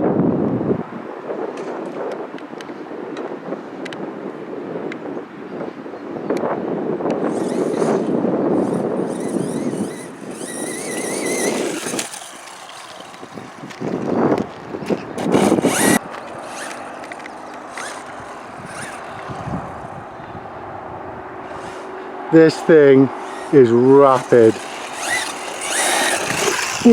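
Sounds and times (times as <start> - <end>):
electric motor whine: 7.1 - 20.6, 21.4 - 26.9
tyres scrabbling over dirt: 7.3 - 19.6, 22.5 - 26.9.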